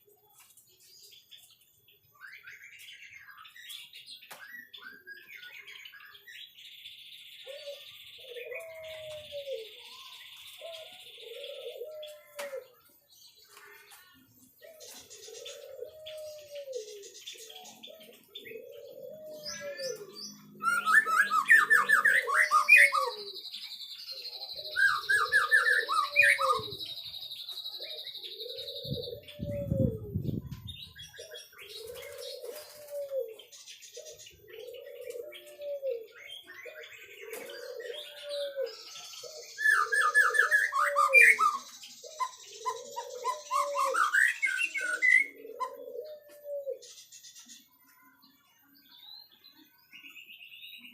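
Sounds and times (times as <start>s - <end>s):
bird singing whistled notes: 14.7s - 32.8s, 36.0s - 45.8s, 48.9s - 50.9s.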